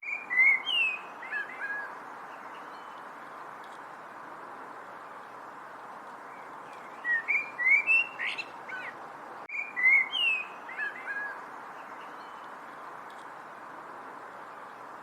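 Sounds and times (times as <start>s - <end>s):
songbird chirping: 0.0s - 3.8s, 6.1s - 13.3s
steady background hiss: 0.0s - 15.0s.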